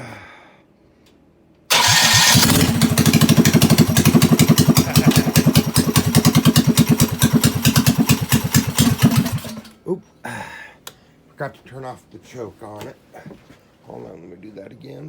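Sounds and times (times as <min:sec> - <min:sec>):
minibike engine running: 0:01.7 - 0:09.6.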